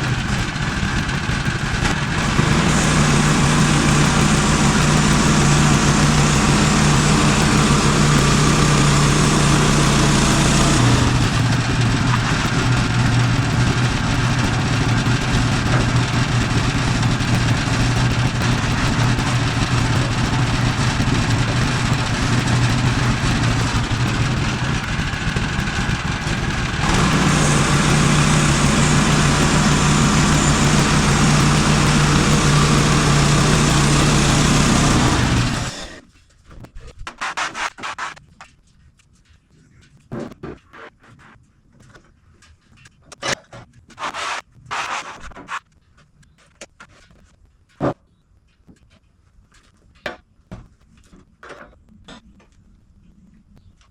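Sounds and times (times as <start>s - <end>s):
small gas engine running: 0.0s - 36.1s.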